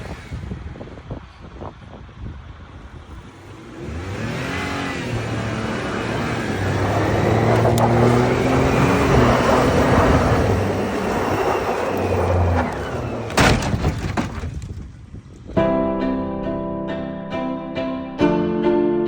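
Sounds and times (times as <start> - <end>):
vehicle engine running: 2.7 - 14.4
rushing noise: 3.5 - 14.3
music: 15.6 - 19.0.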